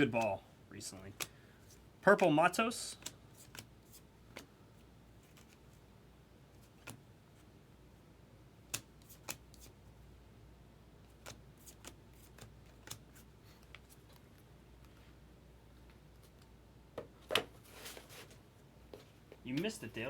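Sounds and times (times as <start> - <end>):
cards being handled: 2.9 - 4.5, 5.2 - 5.8, 8.7 - 9.8, 11.0 - 15.0.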